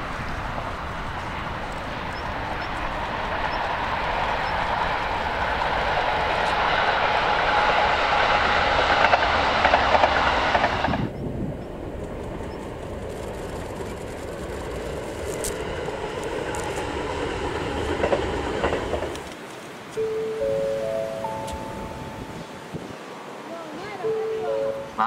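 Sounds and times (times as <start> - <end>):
electric train passing: 0.0 - 25.0
wheels clicking over rail joints: 8.6 - 20.0
station electronic chime: 20.0 - 22.6, 23.8 - 25.0.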